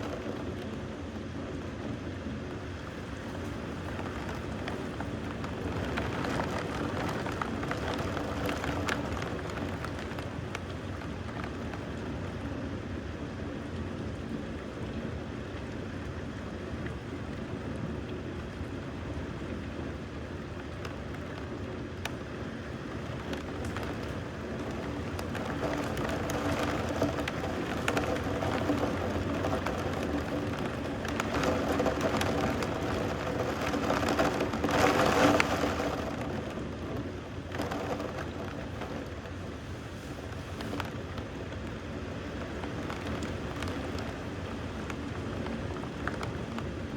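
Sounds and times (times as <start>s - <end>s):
steady rain falling: 0.0s - 46.9s
raindrop ticks: 2.8s - 12.5s, 20.5s - 46.9s.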